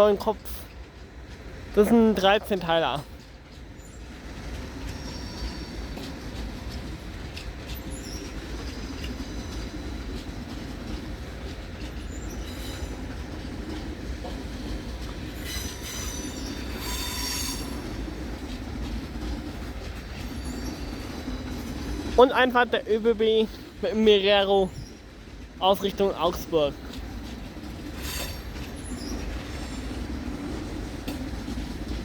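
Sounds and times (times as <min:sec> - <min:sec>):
train rolling slowly: 0:00.0 - 0:32.0
wheel squeals: 0:03.8 - 0:18.6, 0:19.5 - 0:22.3, 0:26.8 - 0:31.8.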